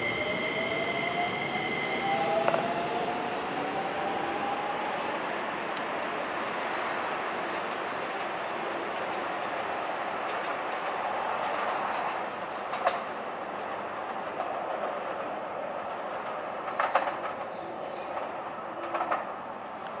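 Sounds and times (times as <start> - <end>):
electric train rolling: 0.0 - 20.0
wheels clacking over rail joints: 7.6 - 20.0.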